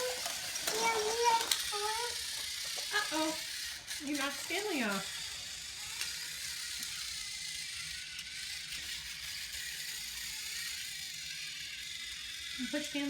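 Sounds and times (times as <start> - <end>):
toy train motor whirring: 0.0 - 13.0.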